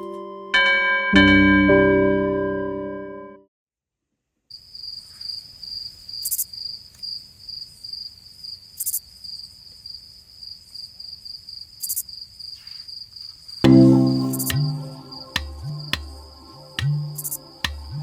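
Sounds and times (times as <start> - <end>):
insect trill: 4.5 - 18.0.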